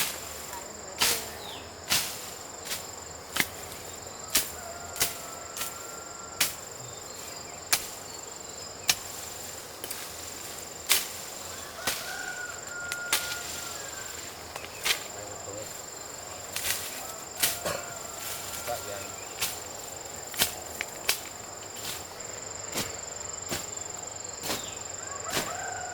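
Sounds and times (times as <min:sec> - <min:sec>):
high-pitched insect drone: 0:00.0 - 0:25.9
sharp chopping strikes: 0:01.9 - 0:03.7, 0:20.4 - 0:22.0.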